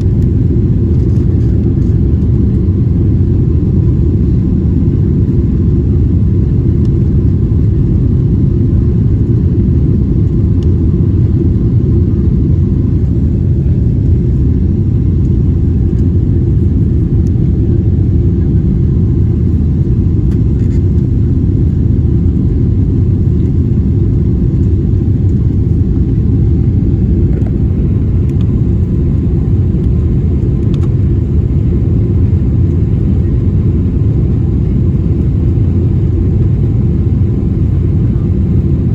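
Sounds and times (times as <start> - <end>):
faint steady hum: 0.0 - 38.9
low rumble of jet engines: 0.0 - 38.9.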